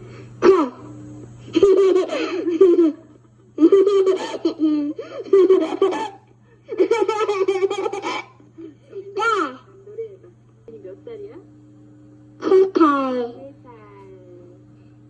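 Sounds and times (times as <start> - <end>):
steady low hum: 0.0 - 15.0
toddler laughing: 1.6 - 8.4.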